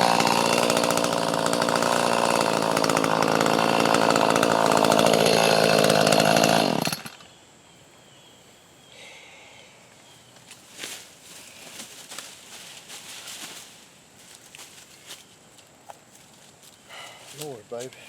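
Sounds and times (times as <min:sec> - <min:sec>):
chainsaw cutting wood: 0:00.0 - 0:07.3.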